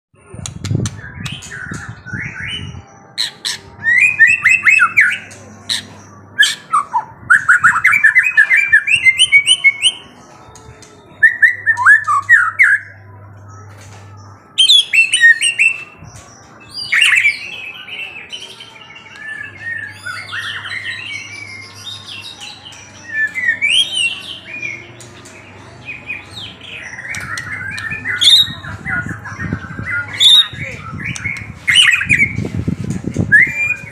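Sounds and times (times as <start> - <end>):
songbird singing rapid chirps: 0.2 - 33.9.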